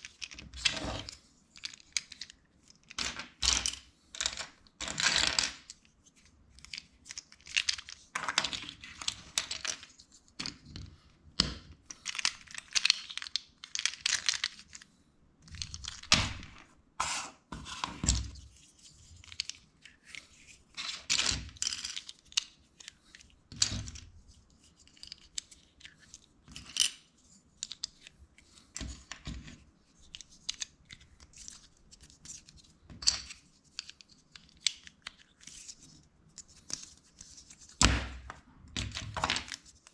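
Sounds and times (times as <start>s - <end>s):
plastic bricks clicking and snapping: 6.6s - 14.8s
plastic bricks rustling and scraping: 11.9s - 14.8s, 19.2s - 24.0s.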